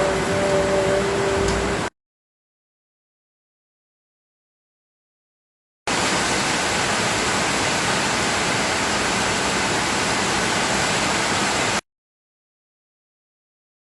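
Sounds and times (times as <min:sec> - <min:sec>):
heavy rain hissing: 0:05.9 - 0:11.8.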